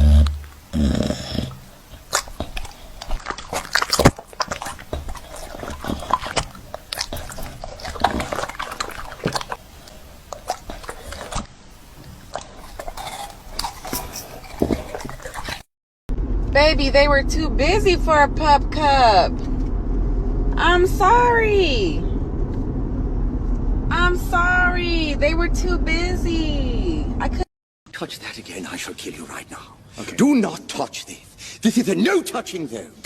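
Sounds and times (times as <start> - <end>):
dog sounds: 0.0 - 15.7.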